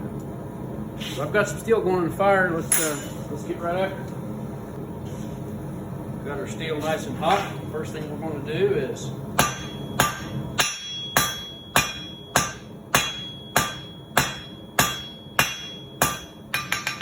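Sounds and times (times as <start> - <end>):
hammer striking steel on anvil: 2.7 - 3.3, 9.4 - 17.0.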